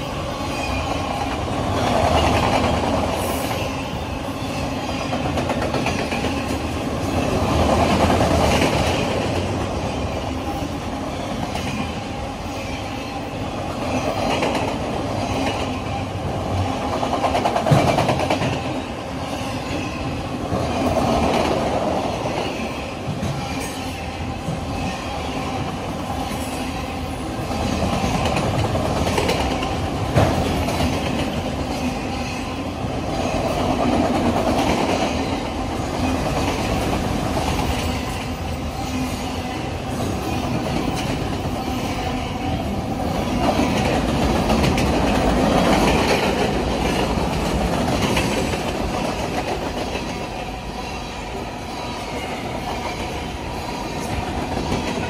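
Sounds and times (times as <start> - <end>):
freight train rumbling past: 0.0 - 55.0
train wheel clicks: 16.8 - 18.7, 27.8 - 31.5, 43.4 - 50.3.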